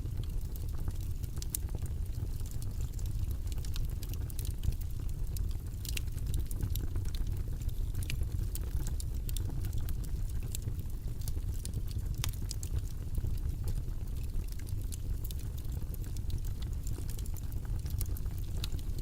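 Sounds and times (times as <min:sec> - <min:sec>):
low rumbling background noise: 0:00.0 - 0:19.0.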